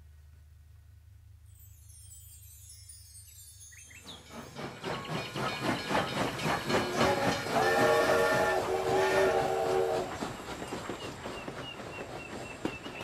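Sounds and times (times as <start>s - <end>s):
bar chimes shimmer: 1.5s - 4.1s
train clattering along: 3.8s - 13.0s
train whistle blowing: 6.9s - 10.3s.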